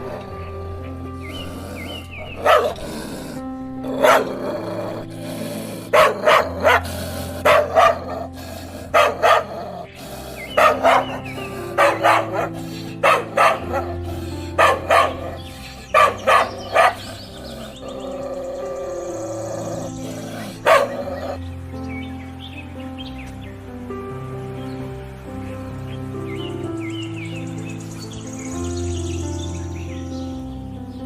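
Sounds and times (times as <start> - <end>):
background music sustained notes: 0.0 - 31.0
dog barking: 1.4 - 21.4.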